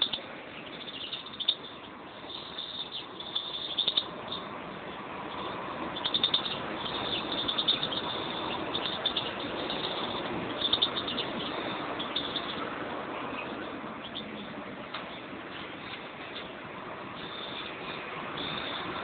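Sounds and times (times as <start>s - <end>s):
finches chirping: 0.0s - 16.6s, 17.2s - 19.0s
steady background noise: 0.0s - 19.0s.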